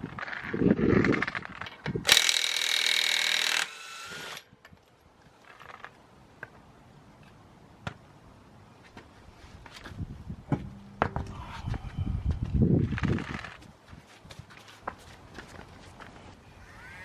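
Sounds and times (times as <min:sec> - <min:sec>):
handheld power tool running: 0:02.1 - 0:04.4.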